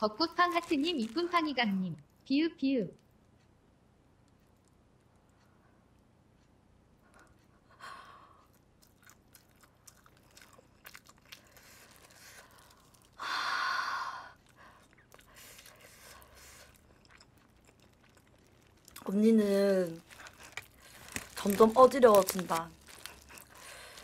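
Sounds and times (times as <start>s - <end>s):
person chewing food: 8.2s - 13.2s, 14.3s - 24.0s.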